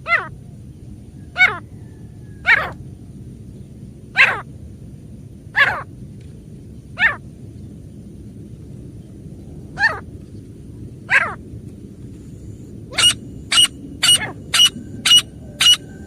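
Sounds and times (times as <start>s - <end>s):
francolin calling: 12.9s - 16.0s.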